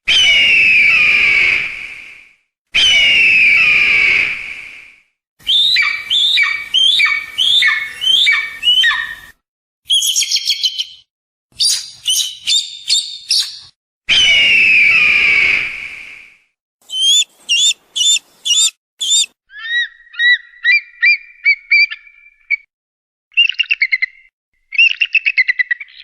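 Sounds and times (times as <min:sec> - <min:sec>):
hawk screaming and chattering: 0:16.8 - 0:20.3.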